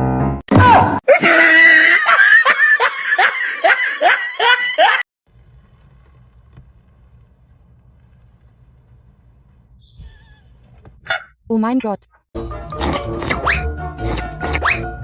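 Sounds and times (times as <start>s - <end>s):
rhythmic laugh-like voice: 1.3s - 5.0s.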